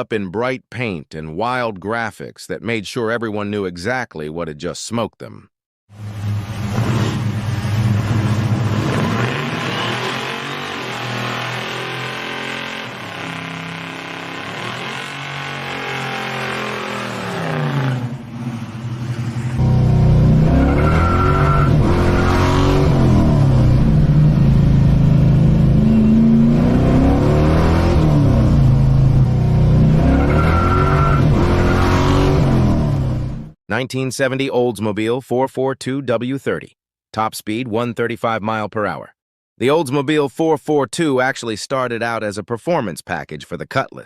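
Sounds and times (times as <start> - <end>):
car engine revving: 6.0 - 33.5.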